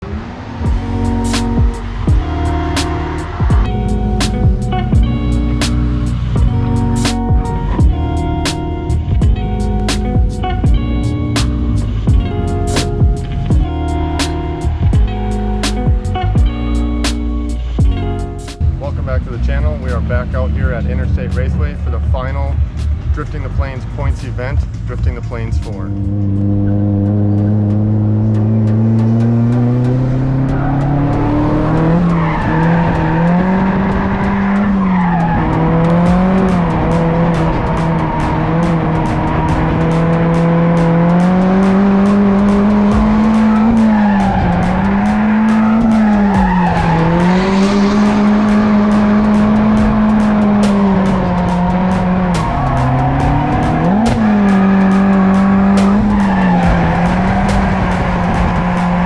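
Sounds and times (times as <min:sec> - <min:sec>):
car engine revving: 0:00.0 - 0:59.0
tires squealing and skidding: 0:18.5 - 0:59.0.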